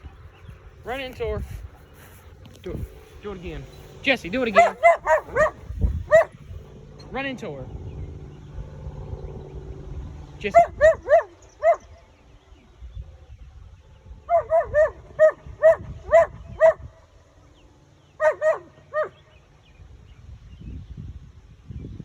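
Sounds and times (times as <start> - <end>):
dog barking: 4.5 - 6.4, 10.6 - 11.9, 14.3 - 16.9, 18.2 - 19.2.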